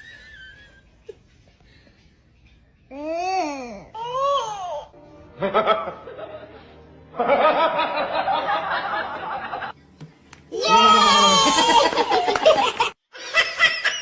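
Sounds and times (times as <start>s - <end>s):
music: 0.0s - 12.7s
laughter: 5.4s - 9.7s, 11.4s - 14.0s.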